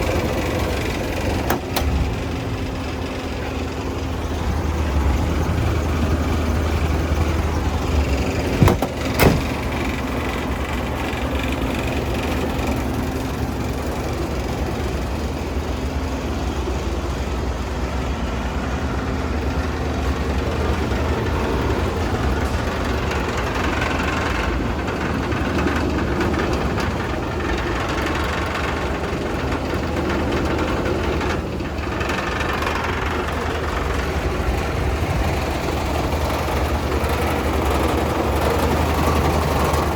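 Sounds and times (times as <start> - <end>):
truck diesel engine idling: 0.0 - 39.9
sharp knocks: 8.5 - 9.6.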